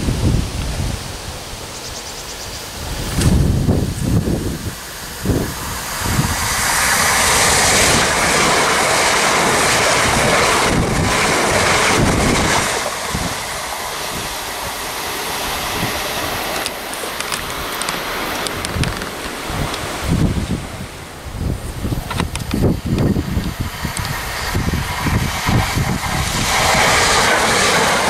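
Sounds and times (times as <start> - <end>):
train passing at speed: 0.0 - 28.0
wind buffeting microphone: 0.0 - 28.0.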